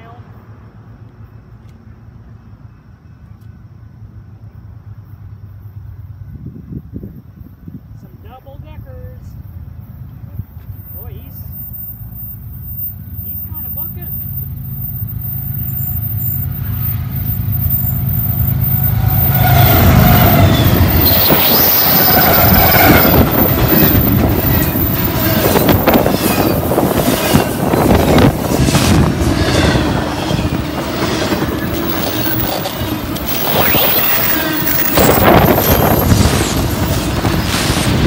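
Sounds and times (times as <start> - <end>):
freight train wheel noise: 0.0 - 38.0
locomotive engine hum: 9.2 - 38.0
high-pitched wheel squeal: 10.6 - 38.0
wheels clicking over rail joints: 19.9 - 38.0.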